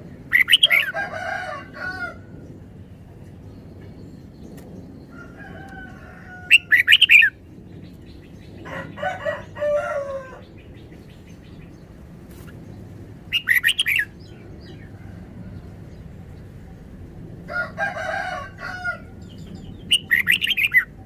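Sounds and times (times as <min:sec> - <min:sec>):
rooster crowing: 0:00.6 - 0:02.3, 0:05.1 - 0:07.0, 0:08.6 - 0:10.4, 0:17.5 - 0:19.2
bird singing bright phrases: 0:13.3 - 0:14.9, 0:19.2 - 0:21.0.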